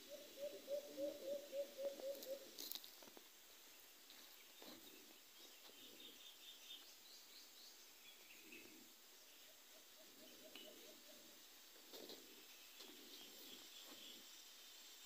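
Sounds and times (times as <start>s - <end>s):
faint bird chirps: 4.1s - 14.6s.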